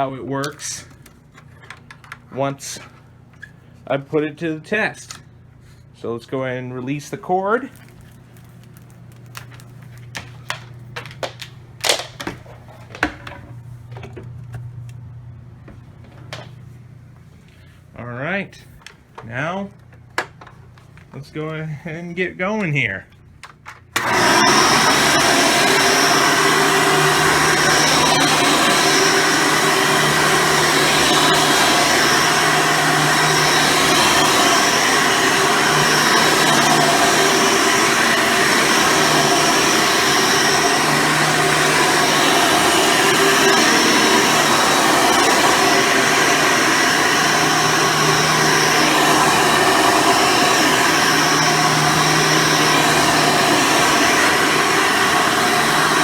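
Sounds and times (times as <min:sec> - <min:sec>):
upright vacuum cleaner running: 0:07.0 - 0:17.3, 0:23.4 - 0:56.0.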